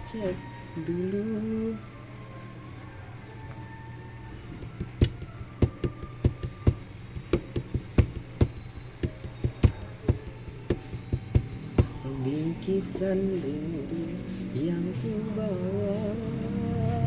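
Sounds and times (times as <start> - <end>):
steady low hum: 0.0 - 17.0
fingers tapping on a smartphone: 4.7 - 12.0.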